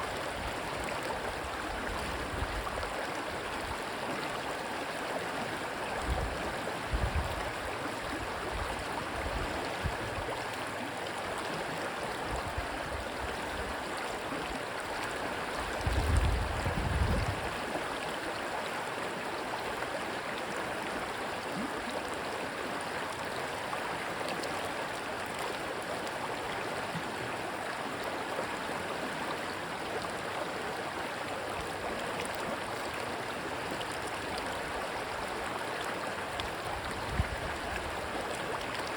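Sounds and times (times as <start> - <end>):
stream water rushing: 0.0 - 38.9
wind rumble on microphone: 1.4 - 2.9, 6.0 - 10.4, 12.3 - 13.7, 15.6 - 17.7, 36.6 - 38.2.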